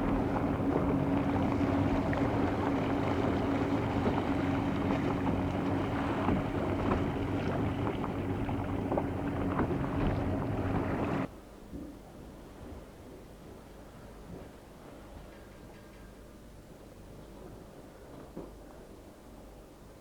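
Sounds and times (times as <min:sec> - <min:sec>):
boat engine humming: 0:00.0 - 0:11.3
water noise: 0:00.0 - 0:11.3
wind: 0:00.0 - 0:20.0.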